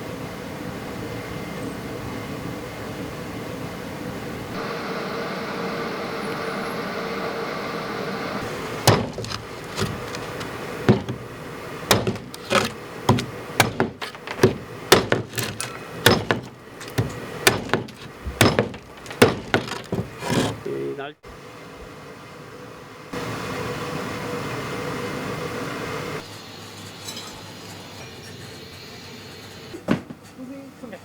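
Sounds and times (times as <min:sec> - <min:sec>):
sharp ringing knocks: 0:08.6 - 0:20.6.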